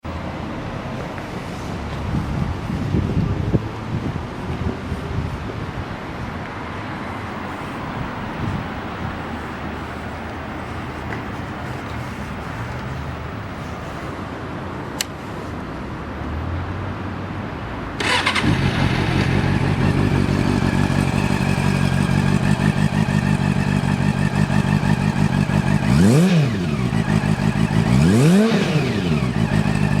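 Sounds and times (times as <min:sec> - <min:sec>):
motorcycle engine idling: 0:18.0 - 0:30.0.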